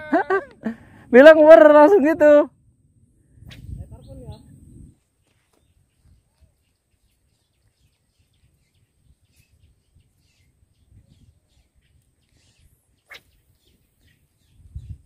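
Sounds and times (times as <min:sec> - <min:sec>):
faint bird chirps: 0:03.4 - 0:15.0.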